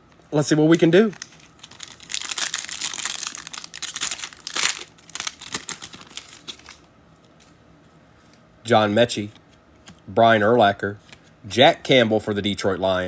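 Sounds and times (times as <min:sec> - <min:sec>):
foil wrapper crinkling: 0:00.5 - 0:06.9.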